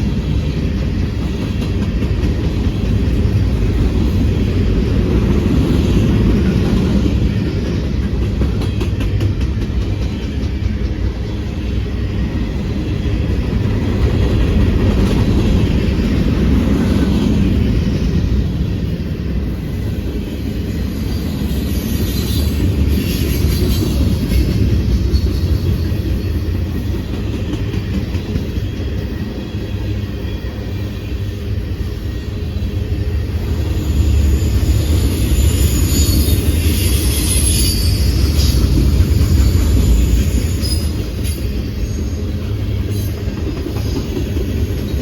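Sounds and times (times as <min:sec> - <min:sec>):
train rumbling on rails: 0:00.0 - 0:45.0.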